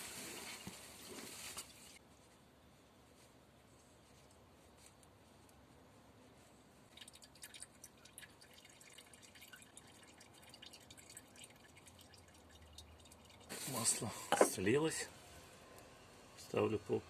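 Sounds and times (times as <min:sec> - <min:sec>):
oil dripping into plastic bottle: 0:06.9 - 0:13.5.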